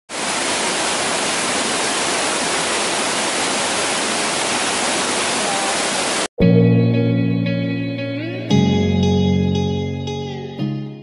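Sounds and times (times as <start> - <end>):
waterfall roaring: 0.1 - 6.3
guitar music: 6.4 - 11.0.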